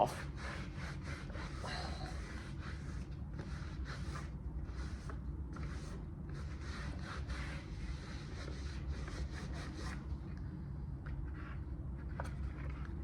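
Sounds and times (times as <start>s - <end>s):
sponge rubbing plastic: 0.2s - 10.0s.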